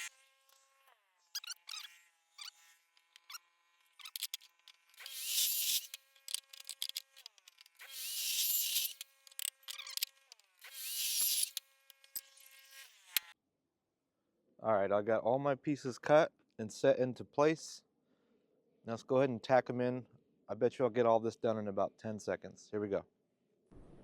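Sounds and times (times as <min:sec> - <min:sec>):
power saw cutting steel: 0:00.0 - 0:13.4
metal clicks from handling: 0:04.0 - 0:05.0, 0:05.8 - 0:07.8.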